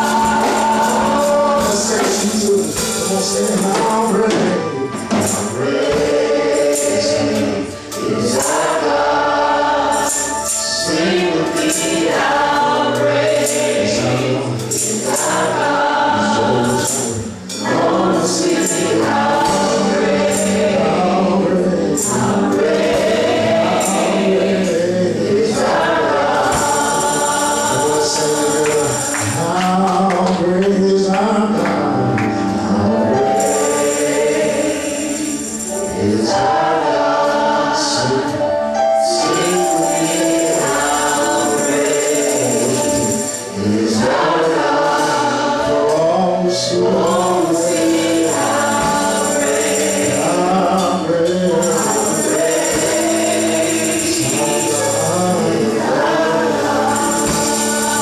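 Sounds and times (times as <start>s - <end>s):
gospel choir singing: 0.0s - 58.0s
tambourine shaking: 5.2s - 29.9s, 33.1s - 36.4s, 39.2s - 45.1s, 47.0s - 58.0s.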